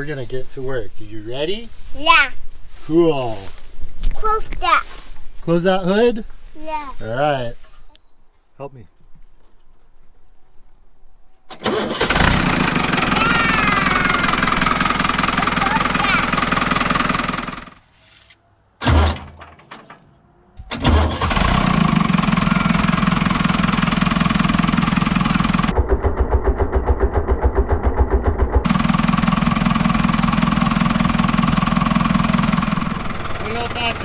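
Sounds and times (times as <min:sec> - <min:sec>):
tractor engine running: 0:11.5 - 0:17.8, 0:20.9 - 0:34.0
tractor engine starting: 0:11.5 - 0:17.8, 0:20.6 - 0:34.0.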